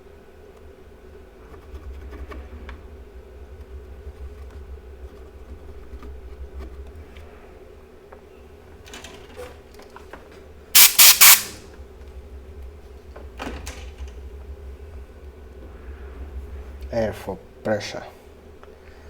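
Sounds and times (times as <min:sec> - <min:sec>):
compressed air hissing: 0:10.8 - 0:11.6.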